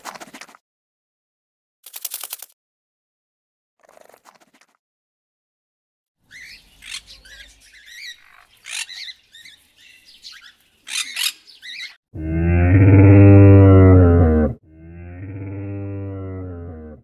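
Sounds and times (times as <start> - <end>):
parrot squawking and chirping: 6.3 - 12.0
camel deep drawn-out call: 12.2 - 17.0.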